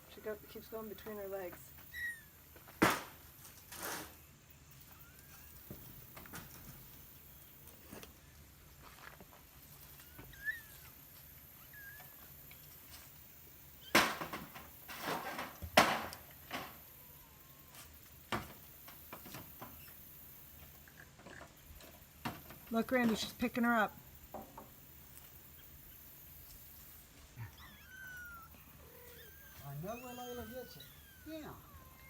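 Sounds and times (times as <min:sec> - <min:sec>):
kittens mewing: 0:04.8 - 0:06.2, 0:16.8 - 0:17.9, 0:27.2 - 0:32.0.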